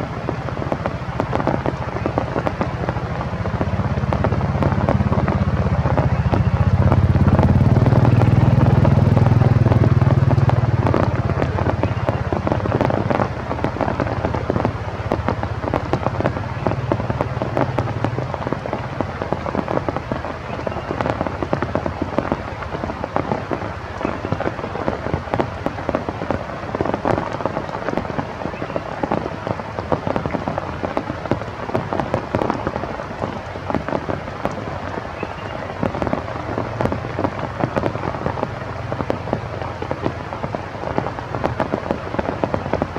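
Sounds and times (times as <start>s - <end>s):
steady rain: 0.0s - 42.9s
low rumble: 1.5s - 22.5s.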